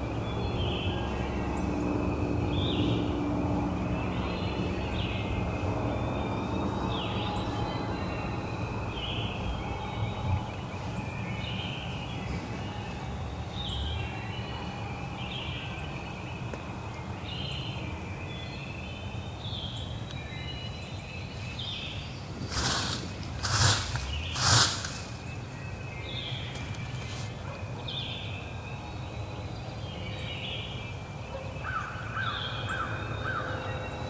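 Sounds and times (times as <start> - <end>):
songbirds singing: 0.0 - 34.0
low outdoor rumble: 20.9 - 29.5
short rushing noises: 22.5 - 25.4.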